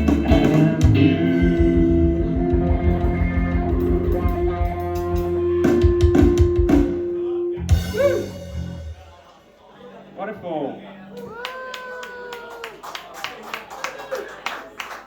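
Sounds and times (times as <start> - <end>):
live band guitar and drums: 0.0 - 9.4.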